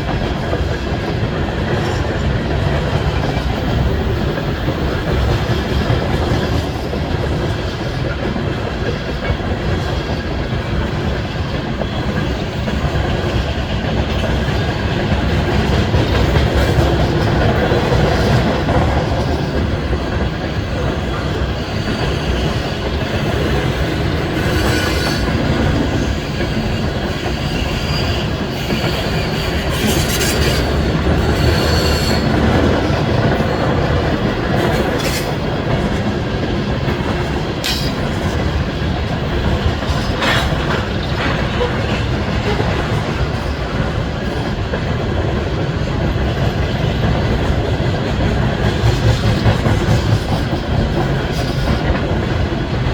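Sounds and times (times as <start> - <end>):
train wheels rumbling on rails: 0.0 - 52.9
wheels clicking over rail joints: 0.0 - 52.9
high wheel squeal: 26.6 - 32.4.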